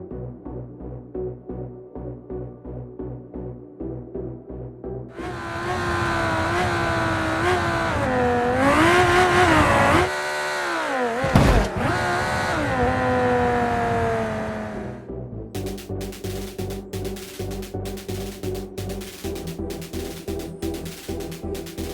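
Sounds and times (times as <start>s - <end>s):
race car passing by: 5.1s - 15.1s
race car engine revving: 5.1s - 21.9s.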